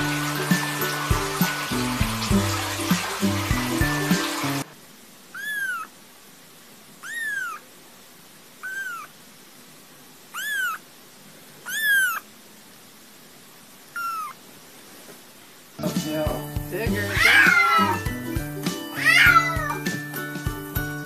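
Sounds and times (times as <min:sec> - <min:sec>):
kitten mewing: 0:05.3 - 0:06.0, 0:07.0 - 0:07.7, 0:08.6 - 0:09.2, 0:10.3 - 0:10.9, 0:11.6 - 0:12.3, 0:13.9 - 0:14.4, 0:17.0 - 0:18.0, 0:18.9 - 0:19.8.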